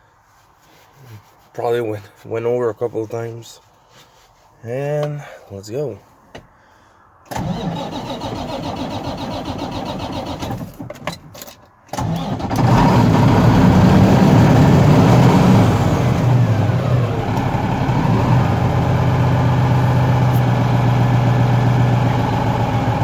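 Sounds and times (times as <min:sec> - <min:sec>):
starter motor cranking: 0:07.3 - 0:10.8, 0:11.9 - 0:14.6
diesel engine running: 0:12.0 - 0:23.0.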